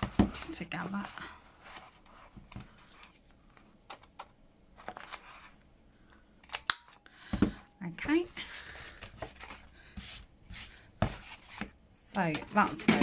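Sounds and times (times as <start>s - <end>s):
paper pages being handled: 0.0s - 5.6s.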